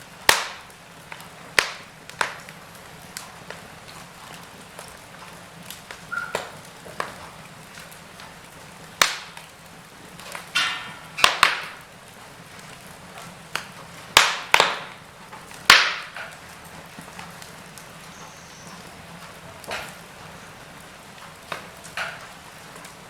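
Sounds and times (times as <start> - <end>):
sharp pops of fire: 0.0 - 20.4, 21.1 - 23.0
faint steady hiss: 0.0 - 23.0
wood fire crackling: 0.0 - 23.0.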